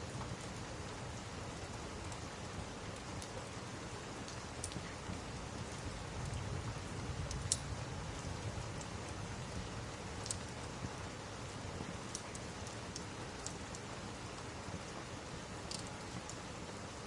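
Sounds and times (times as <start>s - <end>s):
steady rain falling: 0.0s - 17.0s
log fire popping: 4.3s - 11.0s.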